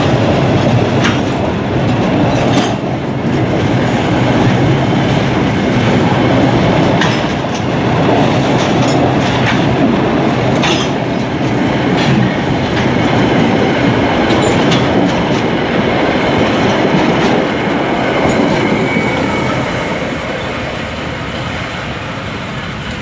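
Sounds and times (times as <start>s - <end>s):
train wheels rumbling and clattering: 0.0s - 23.0s
faint wheel squeal: 18.3s - 22.3s.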